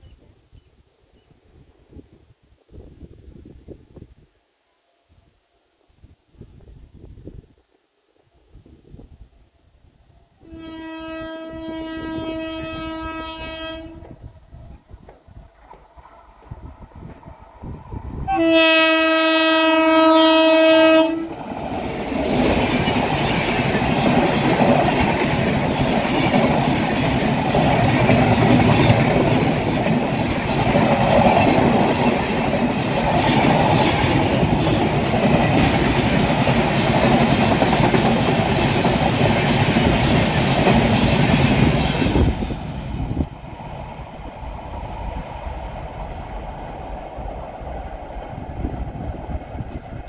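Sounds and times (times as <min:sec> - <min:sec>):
locomotive horn blast: 0:10.4 - 0:14.1, 0:18.3 - 0:21.3
train wheels rumbling on rails: 0:20.6 - 0:50.0.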